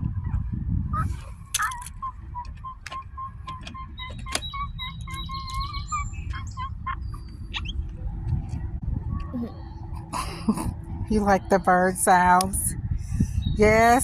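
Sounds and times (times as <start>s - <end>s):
steady low rumble: 0.0s - 14.0s
thin high bird calls: 1.0s - 7.8s.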